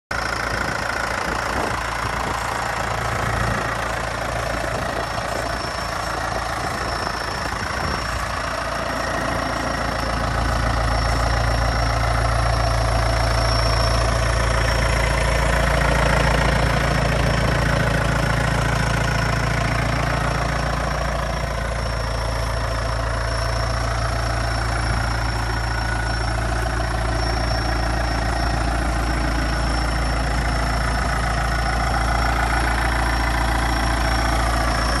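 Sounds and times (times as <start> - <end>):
tractor diesel engine running: 0.1 - 35.0.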